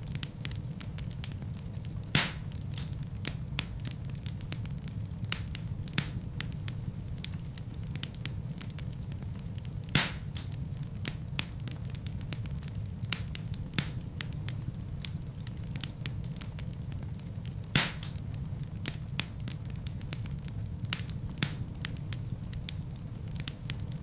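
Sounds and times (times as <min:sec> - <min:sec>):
fire popping: 0:00.0 - 0:24.0
fireplace fire crackling: 0:00.0 - 0:24.0.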